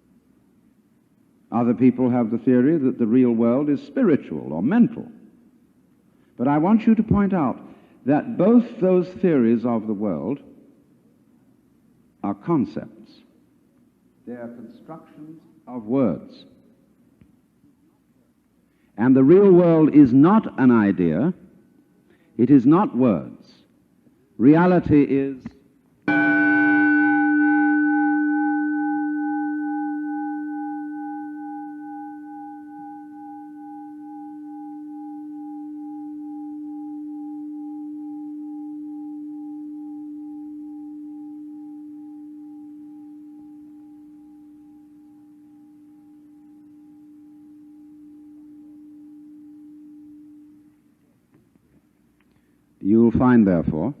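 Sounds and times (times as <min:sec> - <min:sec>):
struck bell ringing: 0:26.1 - 0:51.0.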